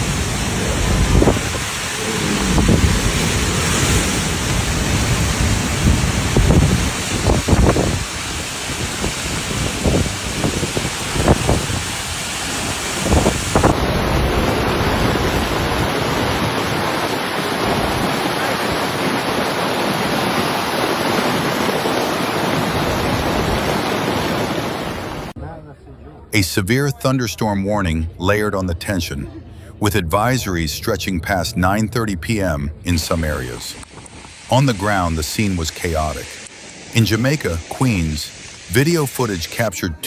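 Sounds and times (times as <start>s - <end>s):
wind buffeting microphone: 0.0s - 25.3s, 33.3s - 35.7s
heavy rain: 0.0s - 25.4s, 32.3s - 40.0s.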